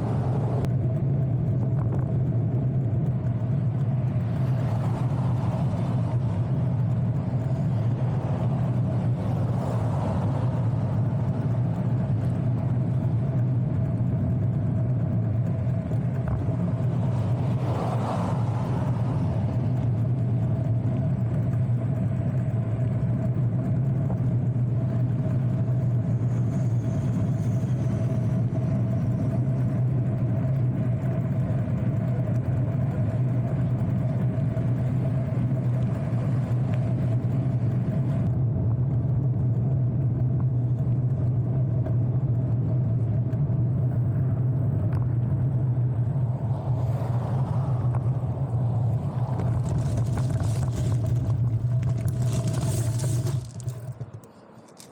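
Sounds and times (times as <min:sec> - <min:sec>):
bicycle riding on road rumble: 0:00.0 - 0:54.9
faint constant hum: 0:00.0 - 0:54.9.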